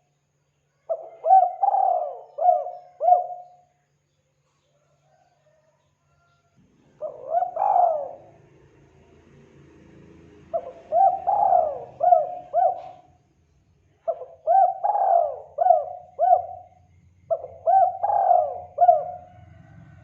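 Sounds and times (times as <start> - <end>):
dove cooing: 0.9 - 3.7, 6.9 - 8.5, 10.5 - 13.2, 14.0 - 20.0.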